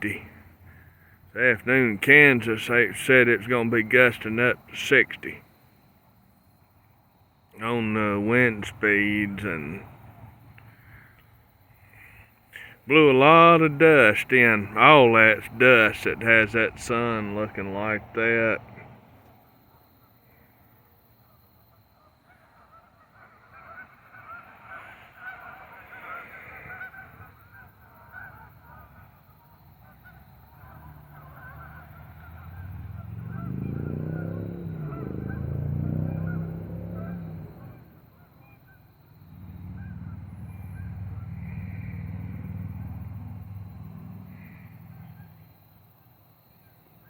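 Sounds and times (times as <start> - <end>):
distant birds chattering: 0.0 - 47.0
engine passing by: 7.6 - 20.5, 22.3 - 45.9.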